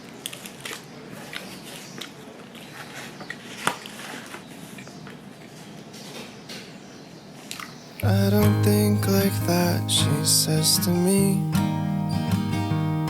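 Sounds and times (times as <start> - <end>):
chewing crunchy food: 0.0 - 5.5.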